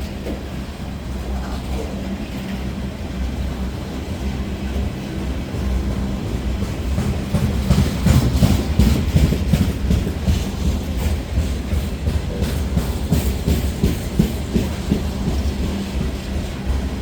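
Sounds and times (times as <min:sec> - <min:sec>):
freight train rolling drone: 0:00.0 - 0:17.0
train wheels clicking over rail joints: 0:00.0 - 0:17.0.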